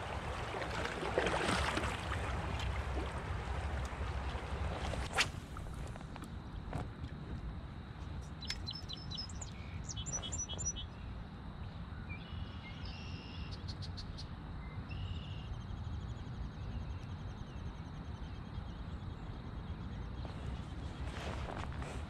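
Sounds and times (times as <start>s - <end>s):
steady low rumble: 0.0s - 8.0s
songbirds chirping and trilling: 8.4s - 15.5s.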